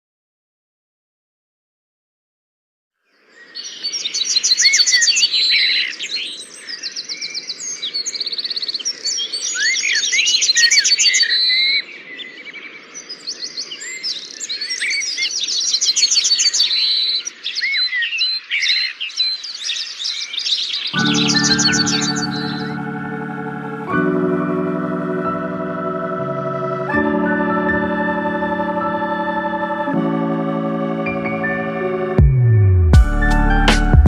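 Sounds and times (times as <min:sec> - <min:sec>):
songbirds singing: 0:03.1 - 0:30.0.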